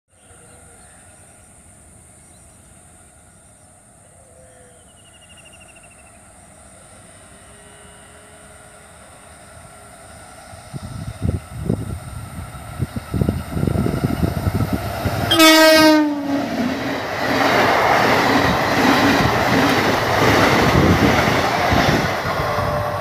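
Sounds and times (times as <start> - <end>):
distant train rumble and hum: 4.6 - 23.0.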